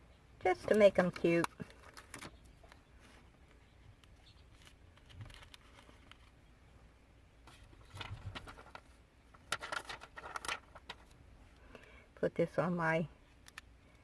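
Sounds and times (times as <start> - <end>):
paper rustling and crinkling: 0.6 - 2.4, 4.5 - 6.4, 7.4 - 11.2.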